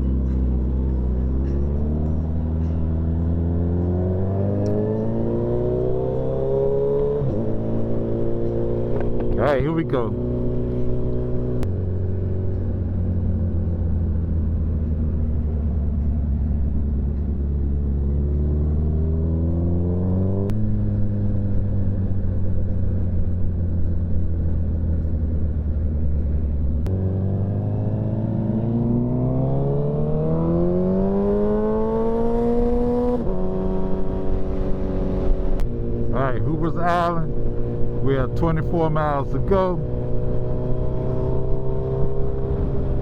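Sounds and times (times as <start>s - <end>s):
motorcycle engine accelerating: 0.0s - 43.0s.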